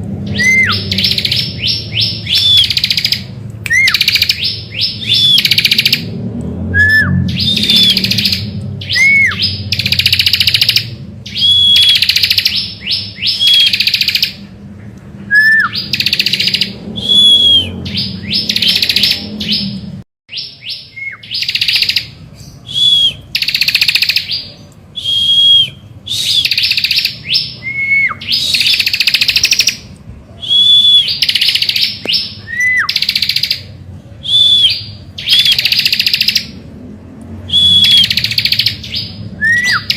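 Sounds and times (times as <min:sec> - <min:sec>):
bird singing buzzy trills: 0:00.1 - 0:06.1, 0:06.7 - 0:14.4, 0:15.3 - 0:36.7, 0:37.4 - 0:39.9
bird downward-slurred whistle: 0:00.3 - 0:06.0, 0:06.7 - 0:14.2, 0:15.3 - 0:19.7, 0:20.3 - 0:22.0, 0:22.6 - 0:24.4, 0:25.0 - 0:29.7, 0:30.4 - 0:33.6, 0:34.2 - 0:36.4, 0:37.5 - 0:39.9
low hum: 0:14.3 - 0:20.0.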